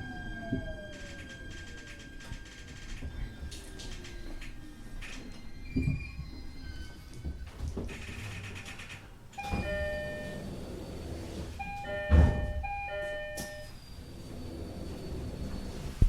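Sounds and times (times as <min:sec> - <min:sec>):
low rumble of train car: 0:00.0 - 0:16.0
train door chime: 0:09.4 - 0:10.8, 0:11.6 - 0:15.8.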